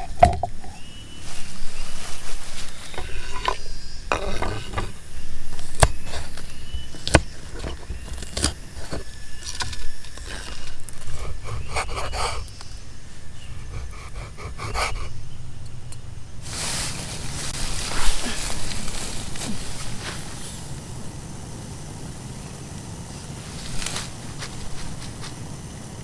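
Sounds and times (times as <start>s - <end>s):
scraping and rubbing: 0.0s - 12.6s.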